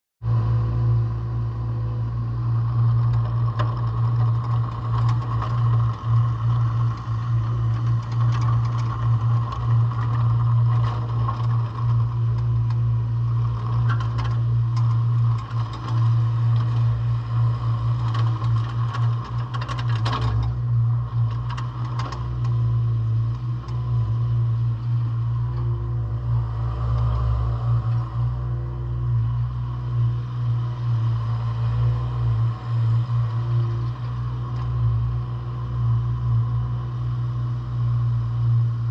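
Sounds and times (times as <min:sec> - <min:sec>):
diesel engine running: 0:00.2 - 0:38.9
machine rattles and knocks: 0:17.9 - 0:22.7.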